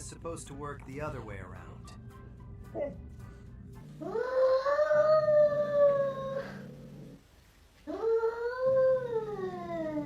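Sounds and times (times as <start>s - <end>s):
dog howling: 4.0s - 6.7s.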